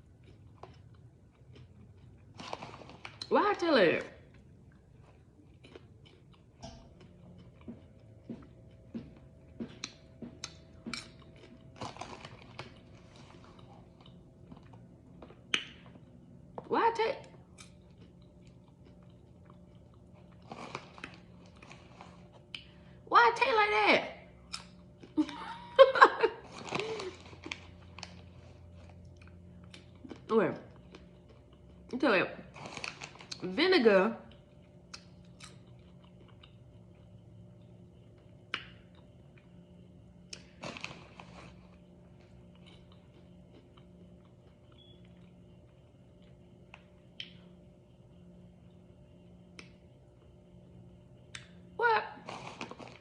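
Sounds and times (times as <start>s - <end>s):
person chewing crunchy chips: 0.0s - 3.3s, 4.3s - 16.2s, 17.4s - 23.0s, 26.4s - 31.9s, 32.5s - 33.5s, 34.3s - 47.4s, 52.2s - 53.0s.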